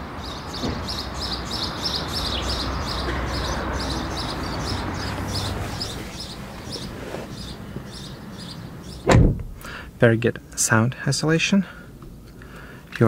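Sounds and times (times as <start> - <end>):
bird chirping: 0.0 - 9.8.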